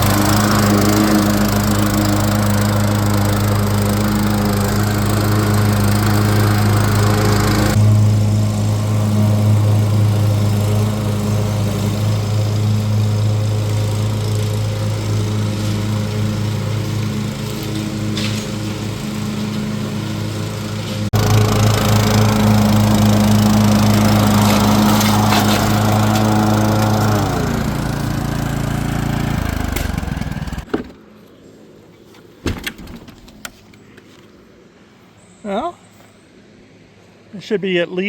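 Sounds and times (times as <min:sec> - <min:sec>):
riding lawn mower engine hum: 0:00.0 - 0:34.6.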